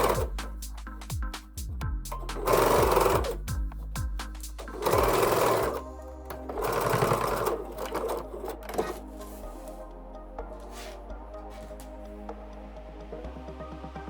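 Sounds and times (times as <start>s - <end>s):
sewing machine stitching: 0.0s - 0.4s, 2.4s - 3.4s, 4.7s - 5.8s, 6.4s - 9.0s
background music: 0.0s - 14.0s.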